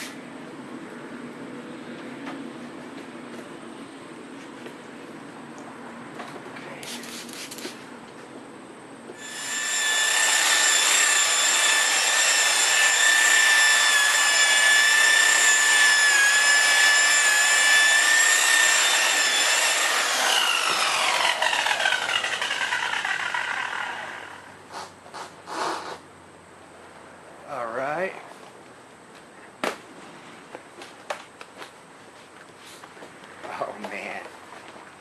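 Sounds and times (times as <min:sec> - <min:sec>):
electric polishing buffer whining: 0:09.1 - 0:24.5.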